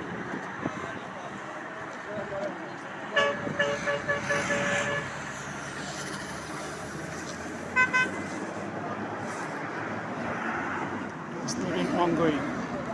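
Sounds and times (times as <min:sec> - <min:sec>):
road traffic noise: 0:00.0 - 0:12.9
vehicle horn beeping: 0:03.2 - 0:05.1, 0:07.8 - 0:08.2.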